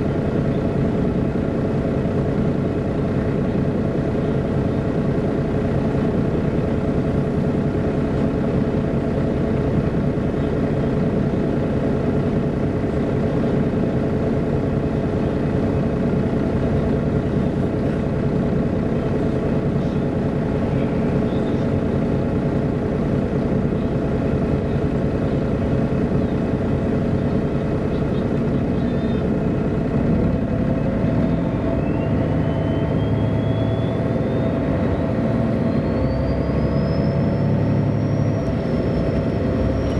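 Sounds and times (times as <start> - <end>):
bus engine drone: 0.0 - 39.9
rising whine: 30.0 - 39.9.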